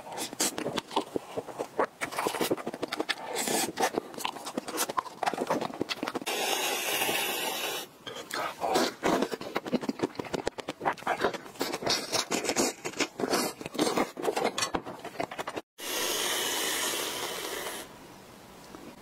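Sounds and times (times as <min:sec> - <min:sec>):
aerosol can spraying hiss: 0:15.8 - 0:17.9.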